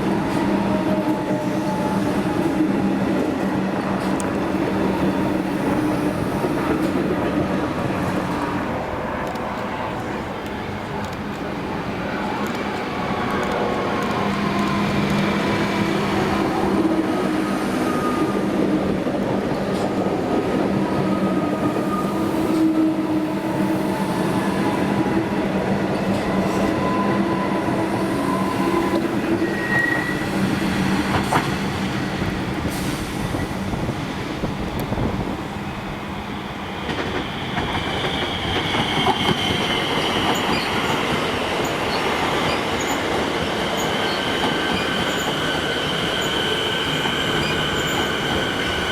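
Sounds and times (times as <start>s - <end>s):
wheels rumbling on rail: 0.0s - 48.9s
high-pitched wheel squeal: 28.2s - 30.4s, 43.8s - 48.9s.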